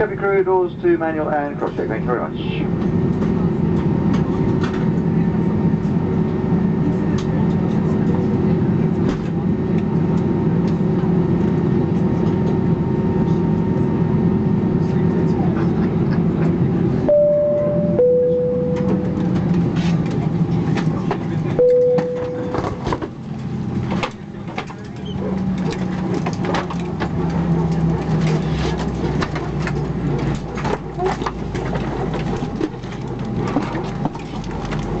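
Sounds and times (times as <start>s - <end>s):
airliner cabin hum: 0.0s - 35.0s
two-tone high-low chime: 17.1s - 19.0s
single lower chime: 17.1s - 19.1s
scattered clicks and knocks: 18.7s - 35.0s.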